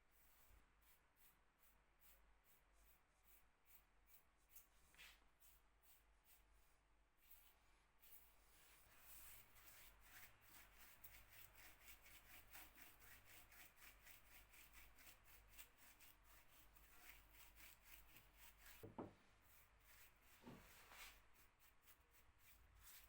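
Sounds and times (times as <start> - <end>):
thump: 18.8 - 19.2.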